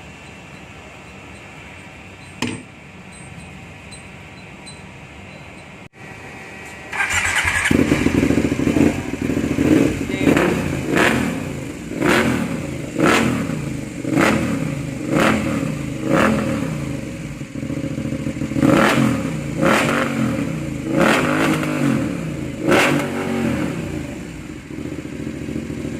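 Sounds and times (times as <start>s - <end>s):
motorcycle engine revving: 6.9s - 25.9s.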